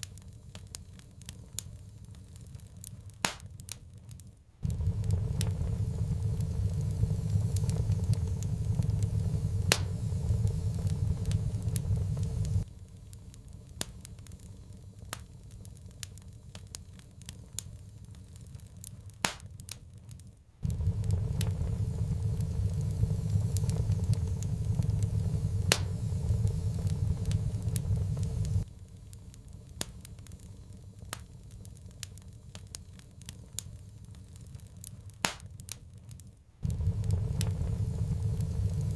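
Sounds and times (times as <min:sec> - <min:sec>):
wood fire crackling: 0:00.0 - 0:38.9
low rumble: 0:04.6 - 0:12.7, 0:20.6 - 0:28.7, 0:36.6 - 0:38.9.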